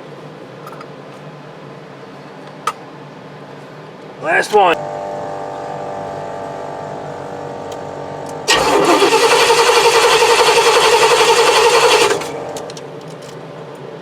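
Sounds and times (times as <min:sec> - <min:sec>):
steady hum: 0:04.2 - 0:13.1
engine starter cranking: 0:08.4 - 0:12.8.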